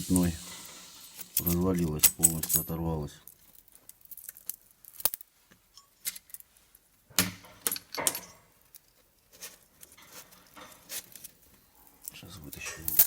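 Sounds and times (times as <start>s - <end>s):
metal pieces clinking and jangling: 1.1s - 5.2s.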